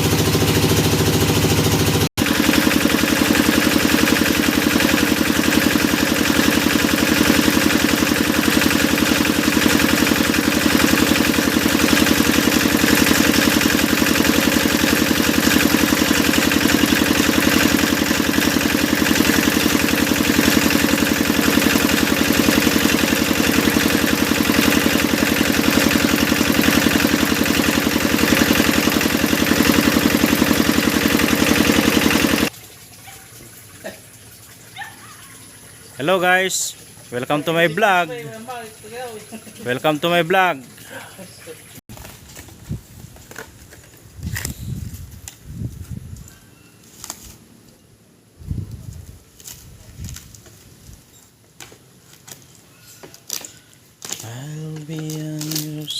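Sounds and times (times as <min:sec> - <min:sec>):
drilling machine engine running: 0:00.0 - 0:32.5.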